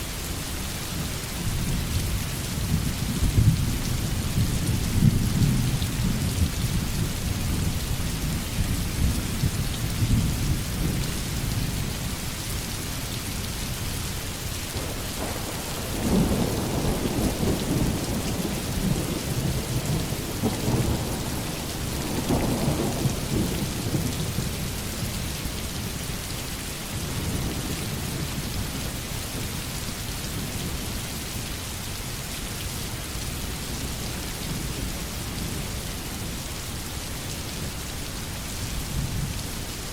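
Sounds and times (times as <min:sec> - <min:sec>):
heavy rain falling: 0:00.0 - 0:39.9
low rolling thunder: 0:14.8 - 0:24.8.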